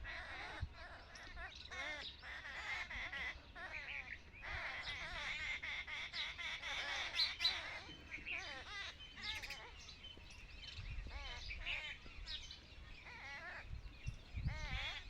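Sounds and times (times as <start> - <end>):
birds chirping: 0.0 - 15.0
sharp loud bird calls: 0.0 - 15.0.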